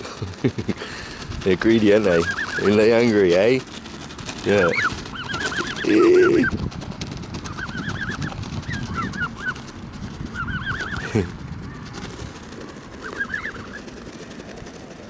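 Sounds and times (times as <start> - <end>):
birds scuffling and pecking: 0.0 - 15.0
geese calling: 0.9 - 3.6, 4.4 - 6.6, 7.5 - 9.7, 10.3 - 11.9, 13.0 - 14.0.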